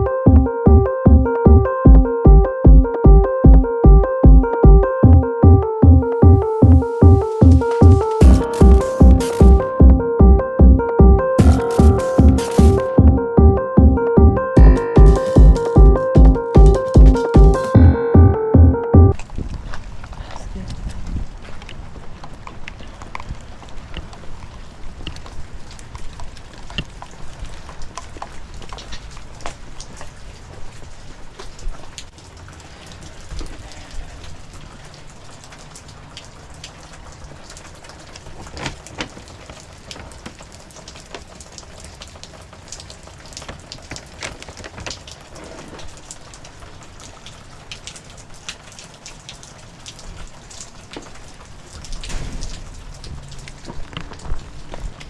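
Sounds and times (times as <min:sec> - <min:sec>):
low rumble: 0:00.0 - 0:19.1
heavy rain falling: 0:06.2 - 0:09.8, 0:11.4 - 0:13.0, 0:19.2 - 0:55.0.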